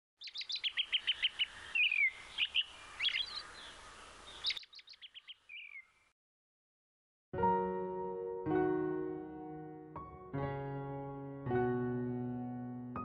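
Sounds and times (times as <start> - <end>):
songbird singing: 0.2 - 6.1.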